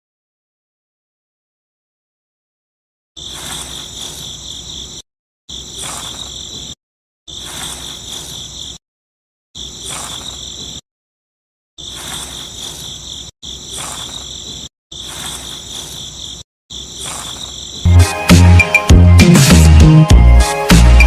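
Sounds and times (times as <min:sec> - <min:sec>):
high-pitched insect chirring: 0:03.2 - 0:08.8, 0:09.6 - 0:10.8, 0:11.8 - 0:17.9
music with a beat: 0:17.9 - 0:21.0.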